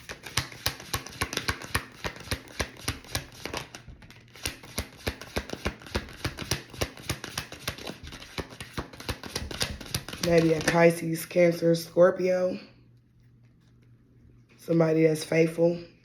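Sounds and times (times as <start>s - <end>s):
cards being shuffled: 0.0s - 10.9s.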